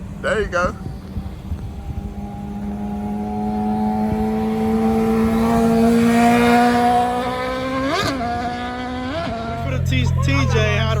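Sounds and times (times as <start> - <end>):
sport motorcycle engine running: 0.0 - 11.0.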